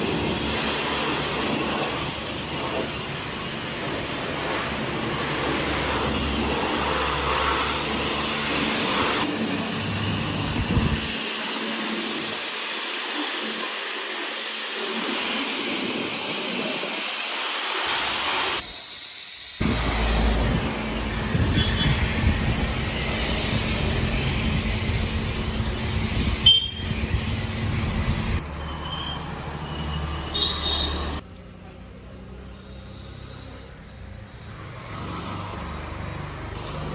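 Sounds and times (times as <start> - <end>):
pressure washer spray hissing: 0.0 - 28.4.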